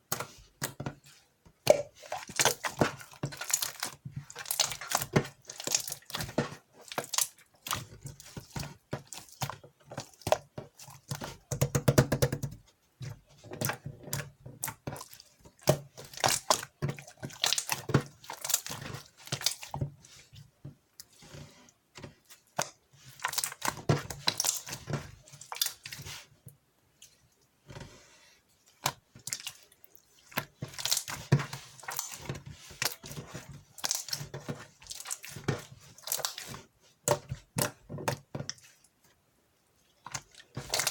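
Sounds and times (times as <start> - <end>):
slime squished by hand: 22.2 - 26.3, 28.8 - 38.2.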